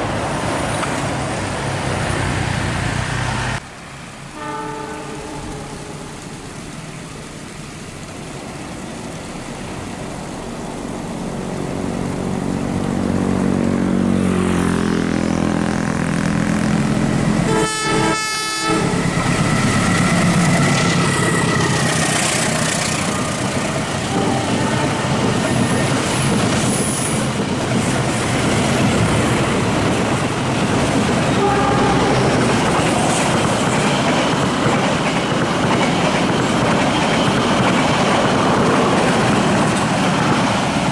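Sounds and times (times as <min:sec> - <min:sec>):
fast train passing: 0:00.0 - 0:40.9
train horn: 0:04.3 - 0:06.2, 0:17.4 - 0:19.0, 0:24.0 - 0:25.7, 0:31.3 - 0:33.0
train wheels clattering over rails: 0:18.9 - 0:40.9.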